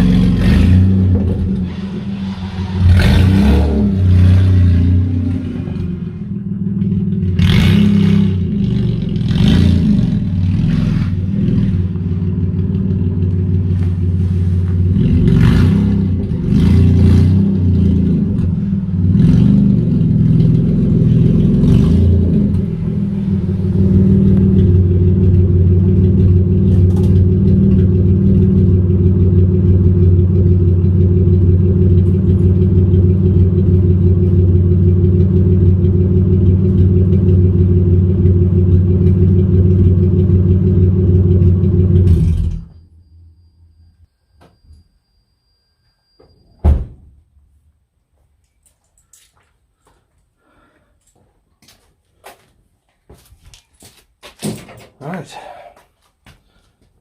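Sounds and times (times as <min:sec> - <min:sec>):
car engine revving and idling: 0:00.0 - 0:43.1.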